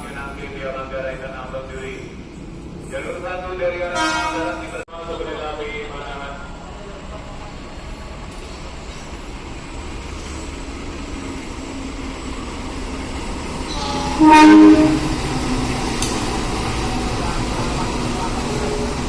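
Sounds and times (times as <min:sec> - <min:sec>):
train rumble: 0:00.0 - 0:19.0
train horn blast: 0:03.9 - 0:04.7, 0:13.7 - 0:15.2.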